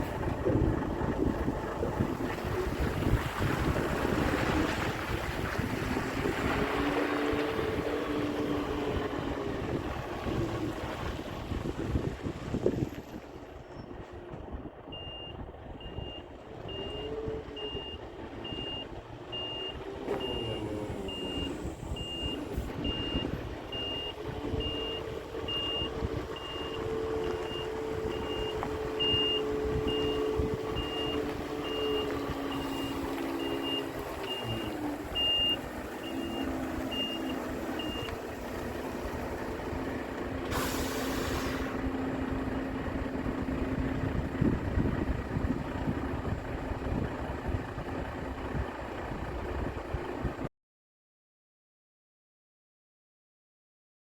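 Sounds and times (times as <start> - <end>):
diesel engine running: 0.0 - 50.5
reversing alarm beeping: 14.9 - 38.2
air hiss: 40.5 - 41.8.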